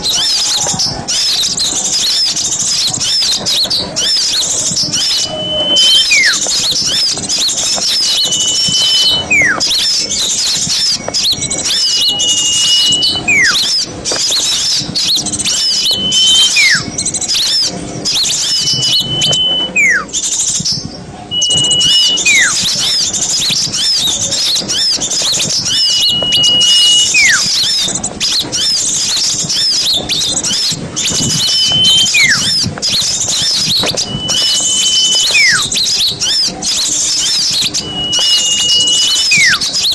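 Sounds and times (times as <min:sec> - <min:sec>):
songbirds chirping: 0:00.0 - 0:39.9
high whistle call with falling note: 0:05.0 - 0:07.1, 0:07.8 - 0:10.0, 0:10.7 - 0:13.8, 0:15.5 - 0:17.6, 0:18.3 - 0:20.2, 0:21.3 - 0:23.0, 0:24.7 - 0:27.8, 0:31.0 - 0:32.6, 0:33.3 - 0:36.5, 0:37.2 - 0:39.9.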